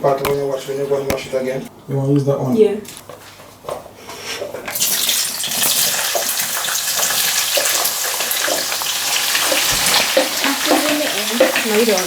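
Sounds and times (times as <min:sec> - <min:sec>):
rice being washed: 0:04.7 - 0:12.0
tap water running into a pot: 0:04.7 - 0:12.0.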